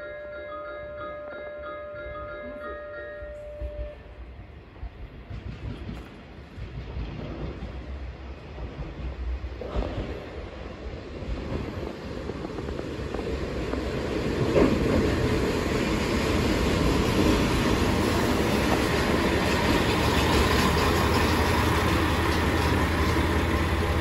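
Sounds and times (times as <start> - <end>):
train wheels on rails: 2.9 - 24.0
diesel engine humming: 15.2 - 24.0.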